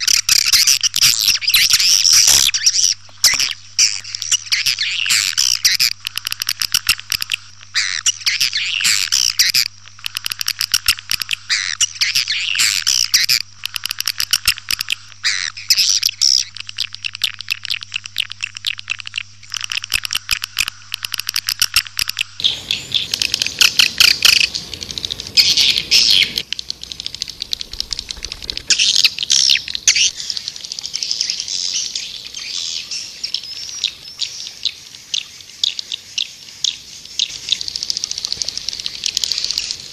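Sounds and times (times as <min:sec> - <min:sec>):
swiftlets chirping and twittering: 0:00.0 - 0:39.9
low hum: 0:22.2 - 0:31.0
faint hiss: 0:22.4 - 0:39.9.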